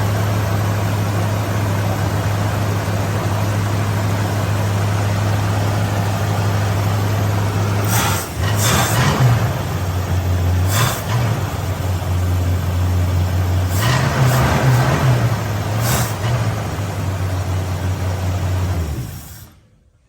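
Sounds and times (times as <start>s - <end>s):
car engine idling: 0.0s - 19.9s
short rushes of hiss: 7.8s - 9.1s, 19.1s - 19.8s.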